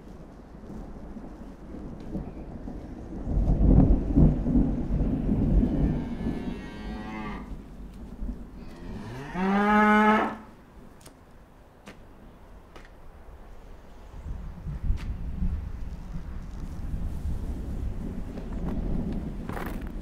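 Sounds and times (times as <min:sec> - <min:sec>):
cattle mooing: 0:05.6 - 0:07.5, 0:08.6 - 0:10.5.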